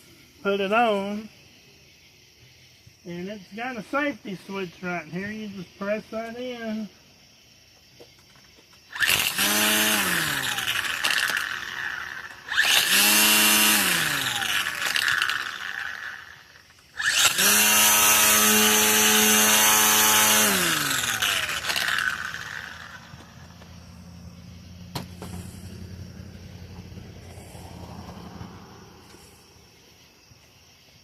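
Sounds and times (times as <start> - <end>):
string trimmer motor whining: 8.9 - 29.6.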